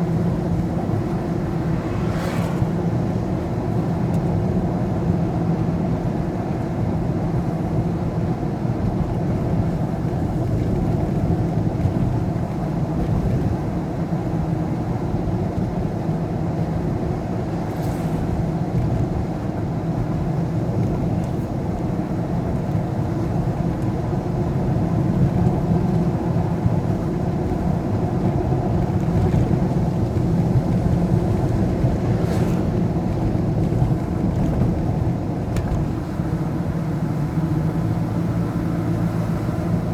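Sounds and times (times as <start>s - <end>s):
vehicle road and engine rumble: 0.0s - 39.9s
faint brief swishes: 1.3s - 2.9s, 32.1s - 33.0s.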